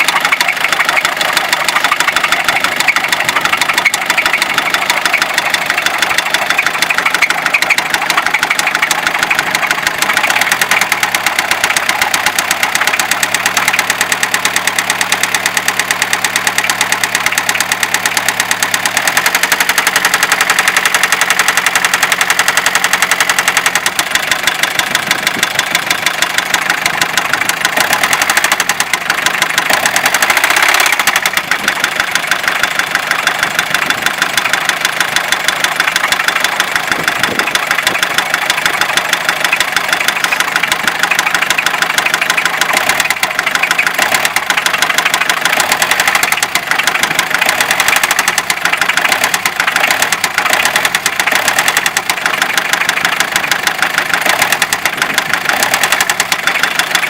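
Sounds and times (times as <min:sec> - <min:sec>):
diesel engine knocking: 0:00.0 - 0:57.0.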